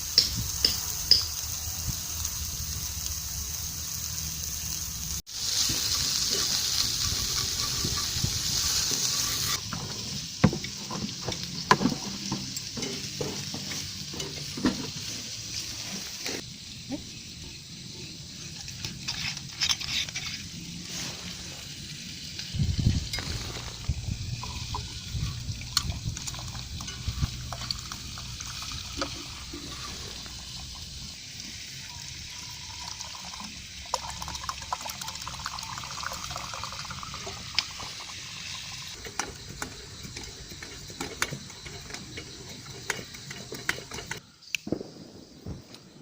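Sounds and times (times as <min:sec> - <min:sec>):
food sizzling in a pan: 0:00.0 - 0:44.5
utensils scraping cookware: 0:06.0 - 0:15.2, 0:18.4 - 0:20.8, 0:38.9 - 0:44.2.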